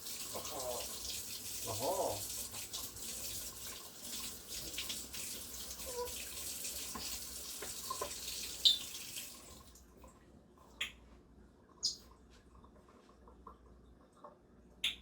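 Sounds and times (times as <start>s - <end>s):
water running from a tap: 0.0s - 9.9s.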